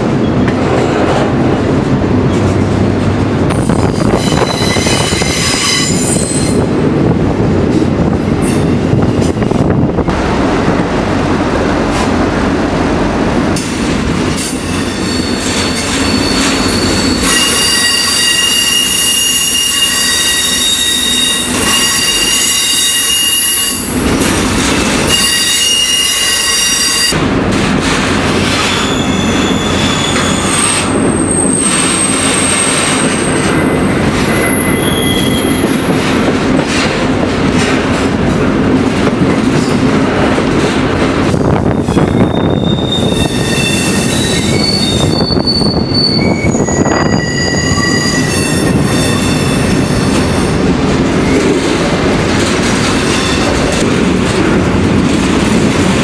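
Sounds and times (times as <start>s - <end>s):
train wheels rumbling on rails: 0.0s - 56.0s
high-pitched wheel squeal: 3.8s - 6.6s, 13.6s - 24.0s, 25.0s - 27.2s, 28.6s - 35.9s, 41.6s - 50.5s.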